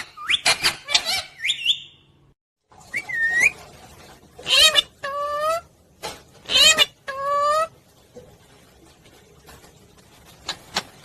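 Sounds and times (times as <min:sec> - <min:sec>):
parrot whistles and squawks: 0:00.0 - 0:02.0, 0:02.8 - 0:03.7, 0:04.4 - 0:05.7, 0:06.4 - 0:07.7.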